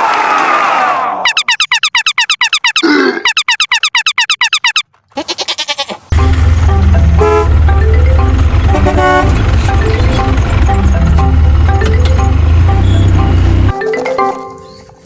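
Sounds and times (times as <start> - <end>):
warbling chirp sound effects: 1.3 - 4.8.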